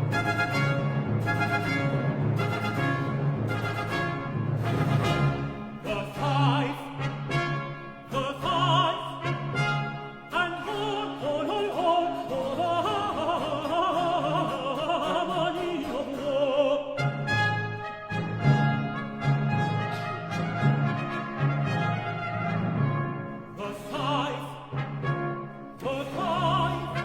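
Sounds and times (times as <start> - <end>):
baroque orchestra with brass: 0.0 - 27.0
countertenor singing: 4.8 - 18.3, 23.4 - 27.0.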